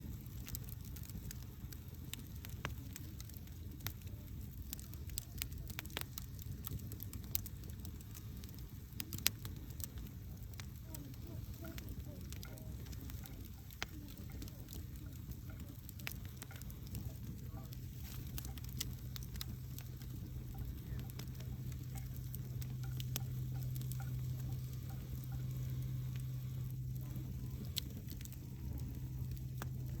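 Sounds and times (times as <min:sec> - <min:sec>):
low steady hum: 0:00.0 - 0:30.0
wood fire crackling: 0:00.0 - 0:30.0.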